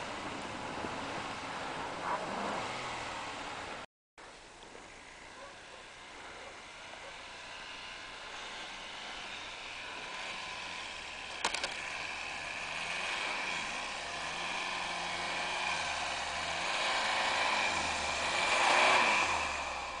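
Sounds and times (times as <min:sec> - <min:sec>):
car engine revving: 0:00.0 - 0:03.9, 0:05.3 - 0:20.0
sharp clicks: 0:11.3 - 0:11.8.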